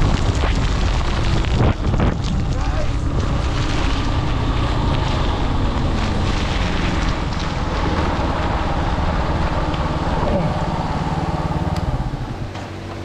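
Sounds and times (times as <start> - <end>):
wind buffeting microphone: 0.0 - 12.9
motorbike engine running: 0.0 - 13.0.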